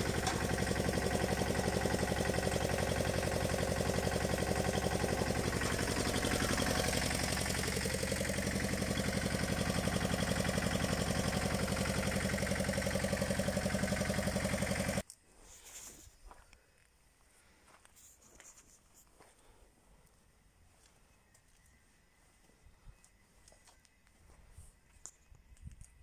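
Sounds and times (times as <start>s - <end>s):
small tractor engine running: 0.0s - 15.0s.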